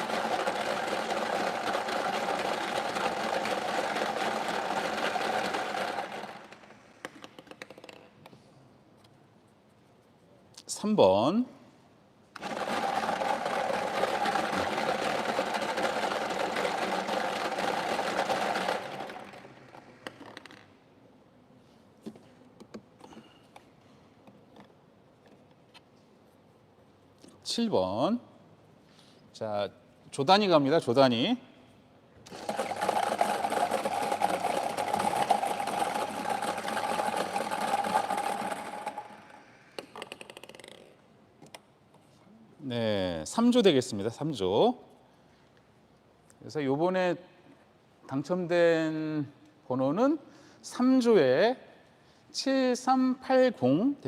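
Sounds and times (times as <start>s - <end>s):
balls rattling in lottery machine: 0.0s - 6.8s, 12.4s - 20.6s, 32.3s - 40.9s.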